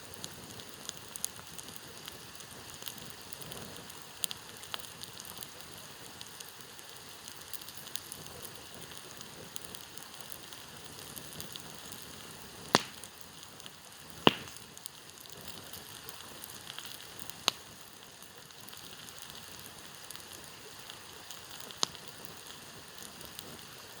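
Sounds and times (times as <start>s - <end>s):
campfire crackling: 0.0s - 24.0s
sharp wood pops: 12.7s - 13.1s, 14.2s - 14.6s.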